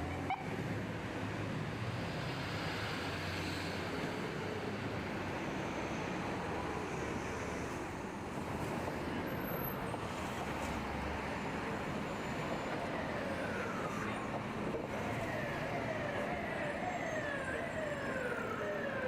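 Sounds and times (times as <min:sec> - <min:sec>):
street traffic noise: 0:00.0 - 0:19.0
emergency vehicle siren: 0:09.4 - 0:19.0.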